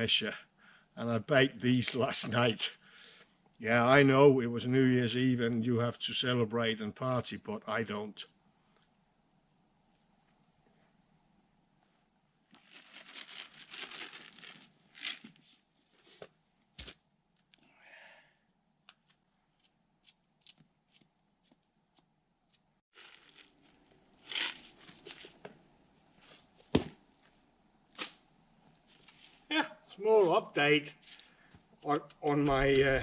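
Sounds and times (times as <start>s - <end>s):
crinkling and tearing: 12.5s - 16.2s, 23.0s - 25.6s.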